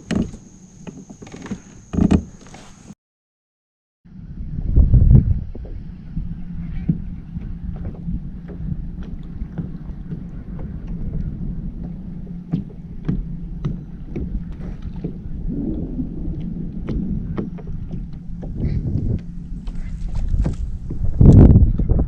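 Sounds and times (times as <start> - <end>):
wind on microphone: 4.1 - 22.0
water splashing against hull: 5.1 - 22.0.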